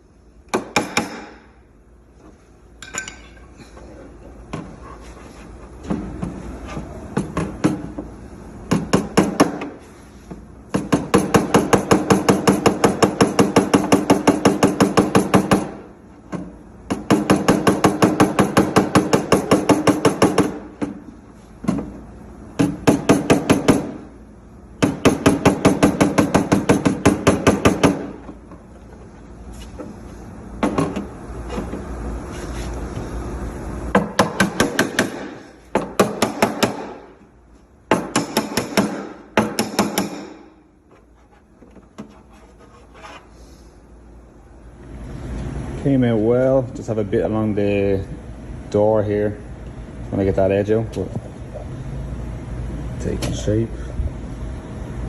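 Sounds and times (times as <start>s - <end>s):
hammer tapping on sheet metal: 0.5s - 1.4s, 8.7s - 9.7s, 10.7s - 15.8s, 16.9s - 21.0s, 24.8s - 28.1s, 33.9s - 37.1s, 37.9s - 40.5s.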